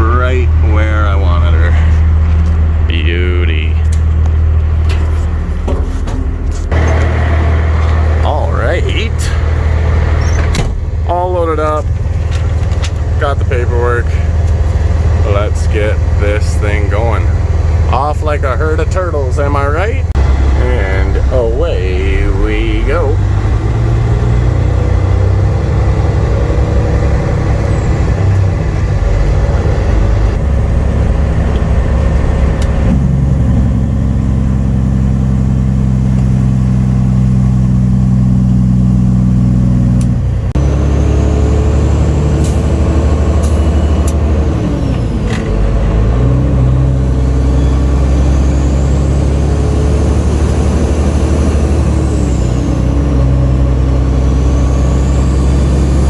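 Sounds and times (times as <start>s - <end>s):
diesel truck engine pulling away: 0.0s - 56.0s.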